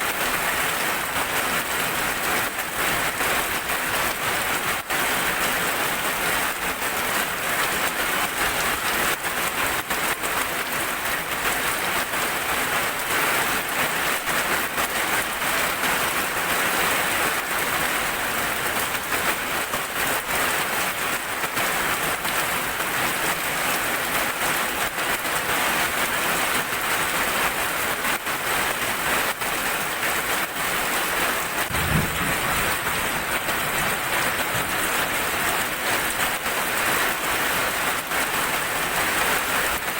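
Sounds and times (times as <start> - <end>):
steady rain falling: 0.0 - 39.9
low thump: 31.7 - 33.6.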